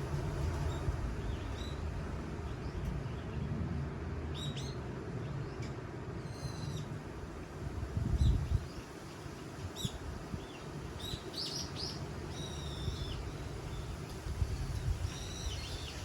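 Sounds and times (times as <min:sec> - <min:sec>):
wind blowing: 0:00.0 - 0:03.5, 0:07.2 - 0:16.0
small birds chirping: 0:08.2 - 0:16.0.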